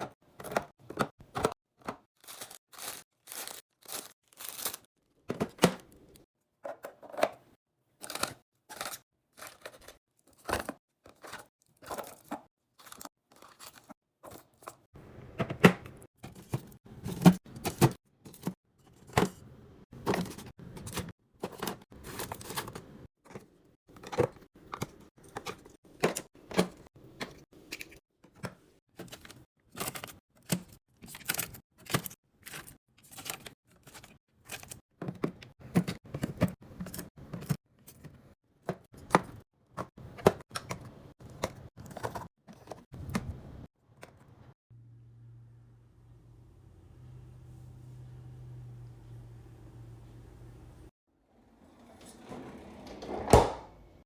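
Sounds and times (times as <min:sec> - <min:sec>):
packaging tearing and crinkling: 0:02.2 - 0:04.9.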